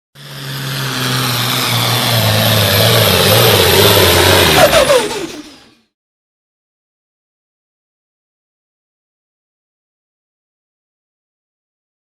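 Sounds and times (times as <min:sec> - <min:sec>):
diesel truck engine under load: 0:00.2 - 0:05.9.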